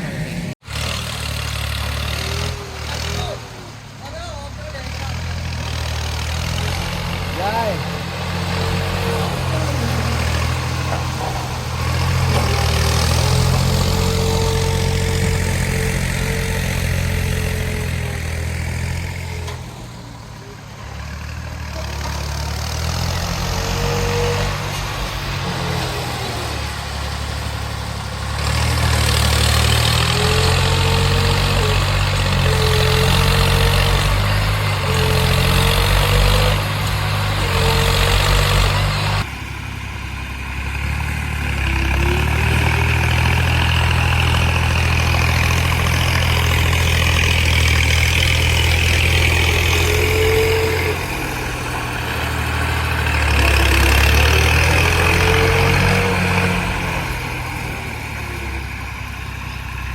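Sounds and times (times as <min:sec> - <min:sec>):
tractor engine drone: 0:00.0 - 0:59.9.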